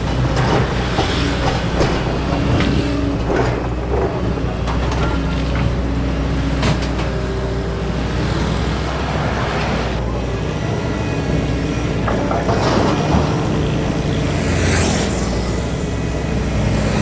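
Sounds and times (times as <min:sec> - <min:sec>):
machinery clatter: 0:00.0 - 0:07.2, 0:11.3 - 0:17.0
excavator diesel engine running: 0:00.0 - 0:17.0.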